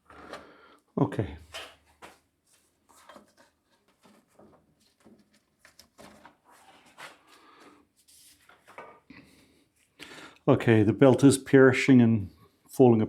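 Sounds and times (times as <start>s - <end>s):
light rubbing and small knocks: 1.4s - 9.1s.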